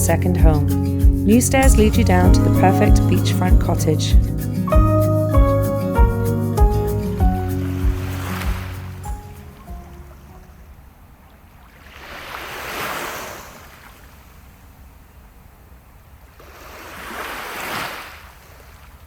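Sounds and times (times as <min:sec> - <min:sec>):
steady low rumble: 0:00.0 - 0:10.4
waves washing onto beach: 0:07.2 - 0:10.2, 0:11.6 - 0:14.8, 0:16.3 - 0:19.0.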